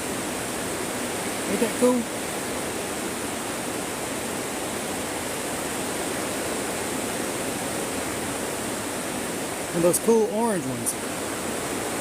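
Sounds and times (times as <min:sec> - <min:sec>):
rain on greenhouse roof: 0:00.0 - 0:05.1.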